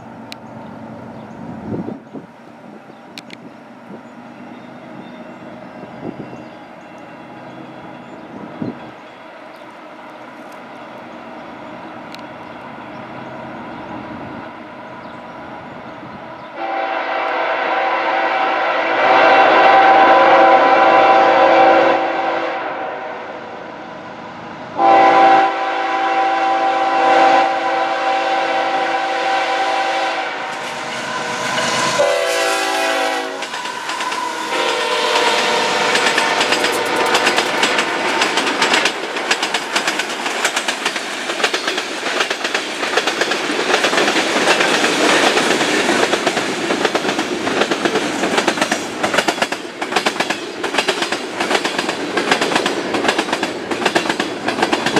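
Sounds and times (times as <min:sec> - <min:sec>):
locomotive air horn blasts: 0:16.6 - 0:23.3, 0:24.8 - 0:37.4
train wheels clattering over rail joints: 0:33.3 - 0:54.9.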